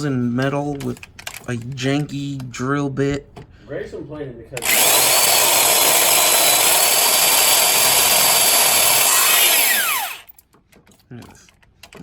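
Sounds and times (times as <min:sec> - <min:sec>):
electric drill drilling metal: 0:04.6 - 0:10.3.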